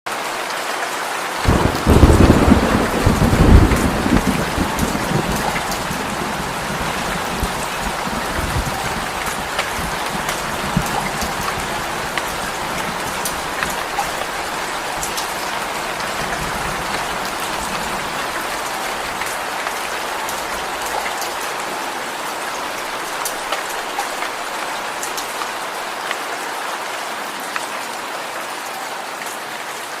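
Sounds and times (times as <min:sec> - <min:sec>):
raindrop ticks: 0:01.4 - 0:21.4, 0:22.8 - 0:25.6
rain hissing: 0:01.4 - 0:25.8.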